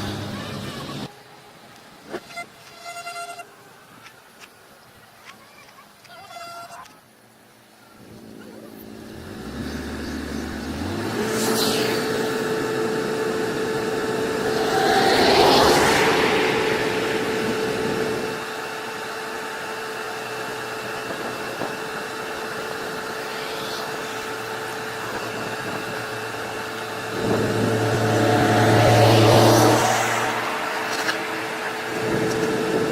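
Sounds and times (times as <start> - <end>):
heavy vehicle engines running: 8.0 - 32.9.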